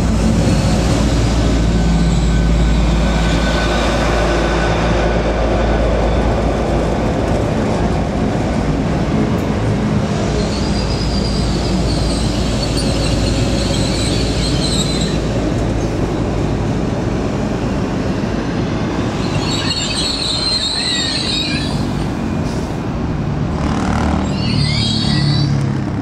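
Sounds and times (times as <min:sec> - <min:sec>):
train rumbling on rails: 0:00.0 - 0:26.0
high-pitched wheel squeal: 0:01.7 - 0:04.3, 0:10.3 - 0:15.4, 0:19.1 - 0:21.9, 0:24.1 - 0:25.8.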